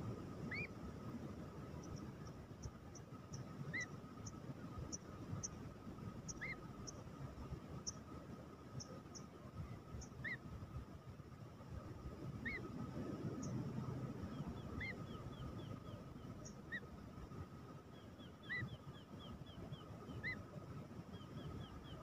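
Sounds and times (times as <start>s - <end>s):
low rumbling background: 0.0s - 20.2s
faint high hum: 0.0s - 22.0s
birds chirping: 1.7s - 7.2s, 13.3s - 17.0s.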